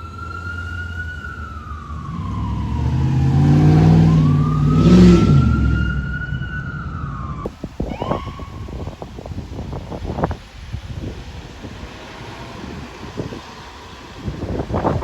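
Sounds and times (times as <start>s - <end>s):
emergency siren wailing: 0.0s - 9.2s, 12.3s - 15.0s.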